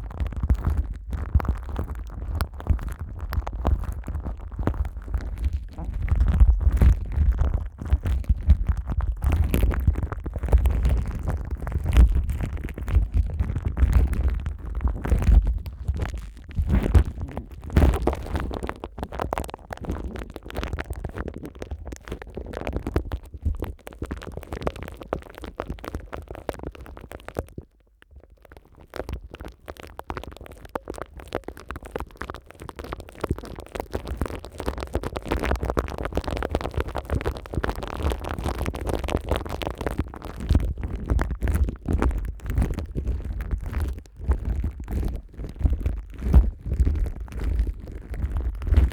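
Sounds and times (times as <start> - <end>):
deep rumbling: 3.8 - 19.0.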